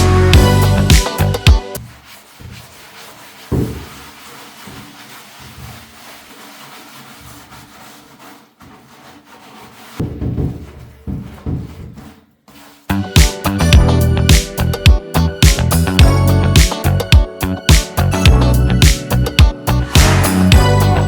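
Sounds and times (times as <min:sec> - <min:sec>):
music: 0:00.0 - 0:01.8, 0:12.9 - 0:21.0
rubbing and scraping by hand: 0:00.0 - 0:21.0.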